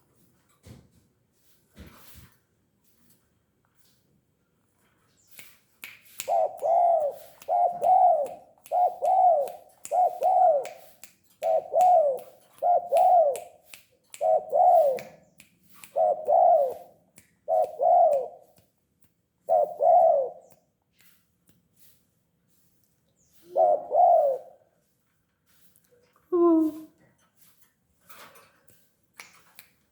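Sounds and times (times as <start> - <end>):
dove cooing: 6.3 - 10.7, 11.4 - 13.4, 14.2 - 15.1, 15.9 - 18.4, 19.5 - 20.4, 23.4 - 24.7.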